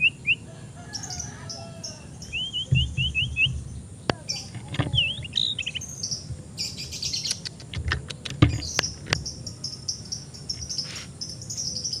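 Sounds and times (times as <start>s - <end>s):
bird chirping: 0.0s - 12.0s
sharp clicks: 7.1s - 9.3s.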